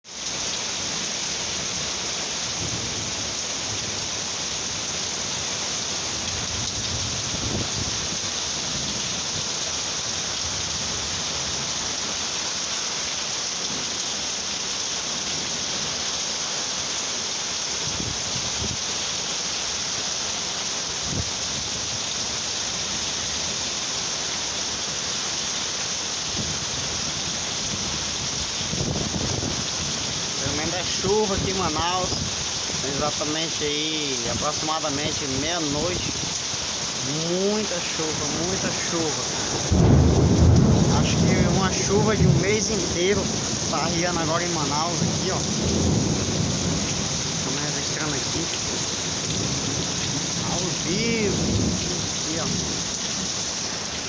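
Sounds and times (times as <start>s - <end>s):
heavy rain hissing: 0.0s - 54.0s
low rumbles of thunder: 6.1s - 9.5s, 26.4s - 33.3s, 37.7s - 53.4s.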